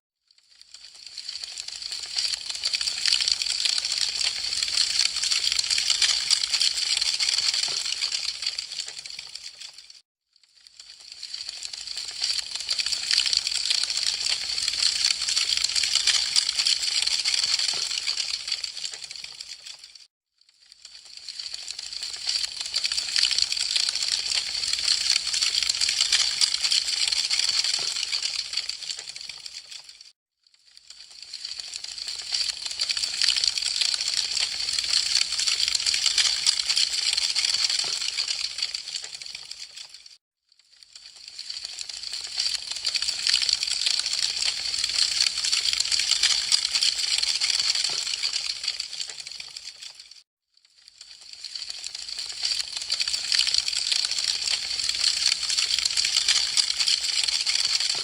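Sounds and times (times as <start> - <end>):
wood fire crackling: 0.9 - 9.8, 10.7 - 20.0, 20.9 - 29.7, 51.5 - 57.2.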